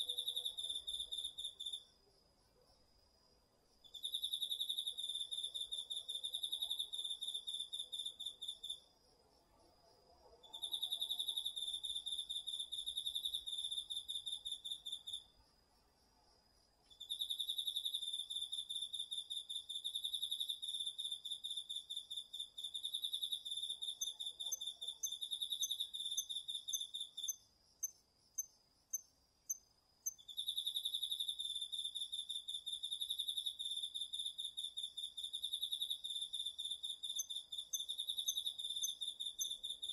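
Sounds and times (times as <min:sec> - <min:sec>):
insect short high chirps: 0:16.9 - 0:39.9.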